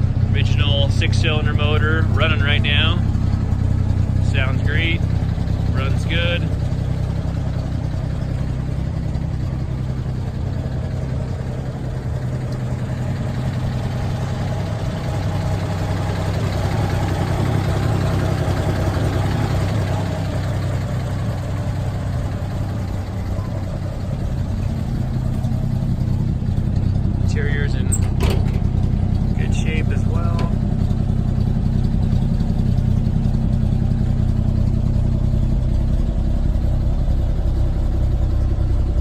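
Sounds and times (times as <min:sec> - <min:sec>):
pickup engine running: 0:00.0 - 0:39.0.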